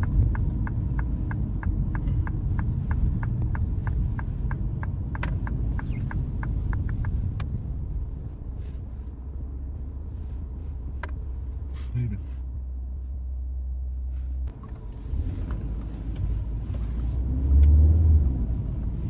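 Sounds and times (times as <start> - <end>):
turn signal ticking: 0.0 - 8.0, 10.8 - 11.6
car engine and road rumble: 0.0 - 19.0.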